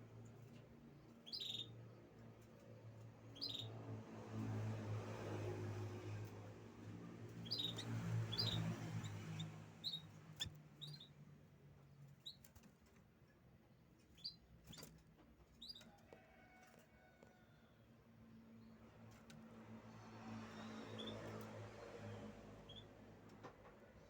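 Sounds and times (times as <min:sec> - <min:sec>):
canary chirping: 0:01.0 - 0:02.4, 0:03.3 - 0:04.0, 0:07.2 - 0:12.7, 0:14.0 - 0:16.0, 0:20.5 - 0:23.0.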